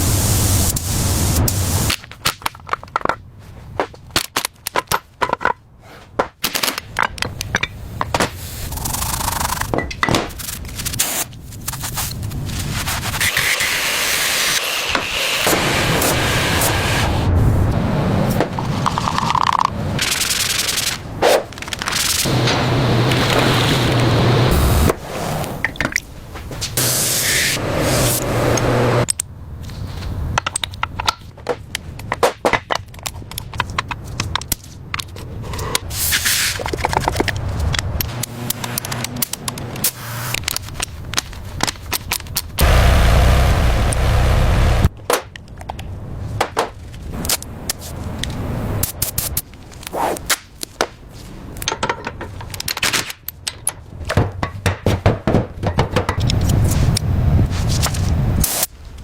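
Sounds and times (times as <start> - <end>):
rushing machine or air noise: 0.0 - 1.9, 13.1 - 18.8, 22.2 - 25.6, 26.8 - 29.1, 42.6 - 44.9.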